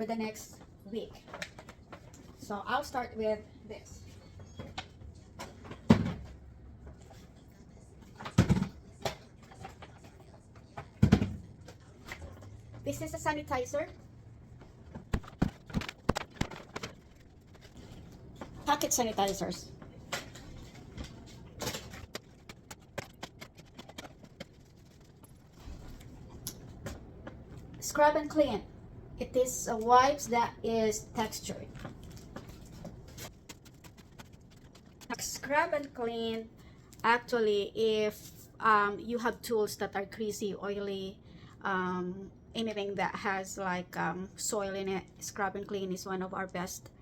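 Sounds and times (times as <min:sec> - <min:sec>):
items knocking on hard surface: 0:14.8 - 0:17.8.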